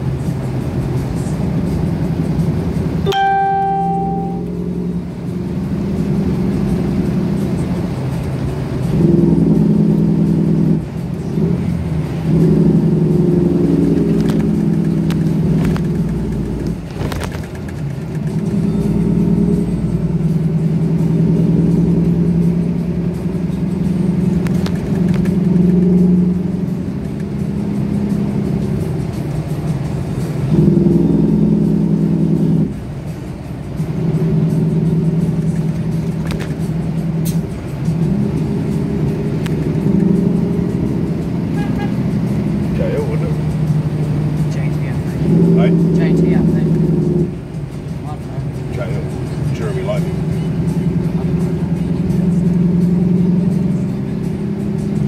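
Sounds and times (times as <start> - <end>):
diesel truck engine under load: 0.0 - 55.0
brief high tone: 3.1 - 4.8.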